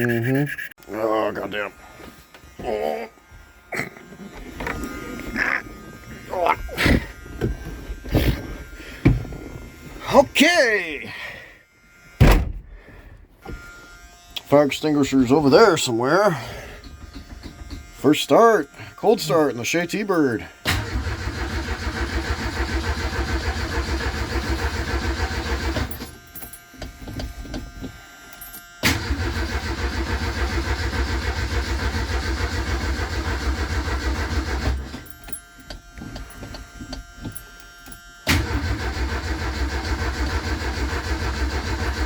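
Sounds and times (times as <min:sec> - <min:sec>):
starter motor cranking engine: 0:20.1 - 0:26.4, 0:28.8 - 0:42.0.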